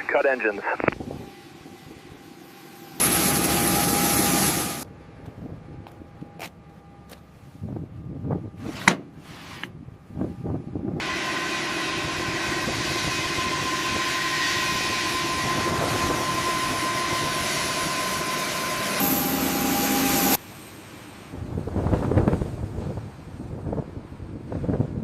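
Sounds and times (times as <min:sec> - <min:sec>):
mechanical noise with whine: 0:09.7 - 0:22.4.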